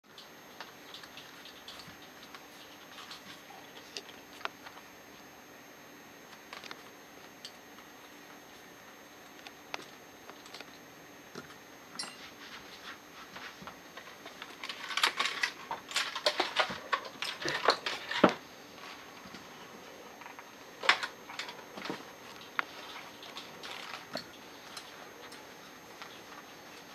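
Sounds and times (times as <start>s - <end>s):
small metal parts clinking: 14.5s - 18.2s.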